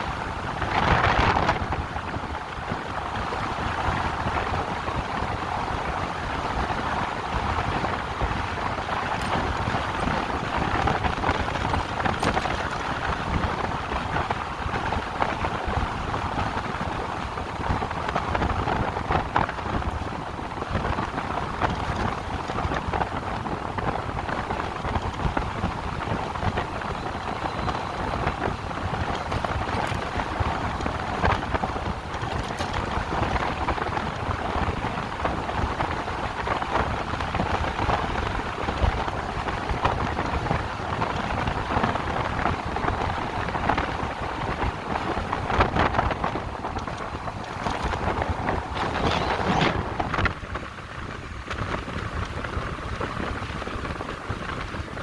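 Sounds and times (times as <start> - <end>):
motorcycle tyre noise: 0.0 - 55.0
wind rushing: 47.2 - 50.6.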